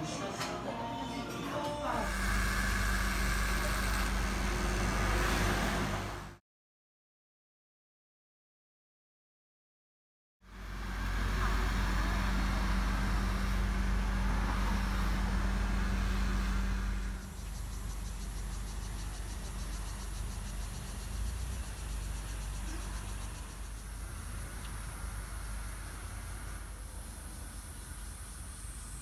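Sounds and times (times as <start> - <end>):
motor vehicle hum: 1.9 - 6.4, 10.5 - 29.0
insects chirring: 17.0 - 29.0.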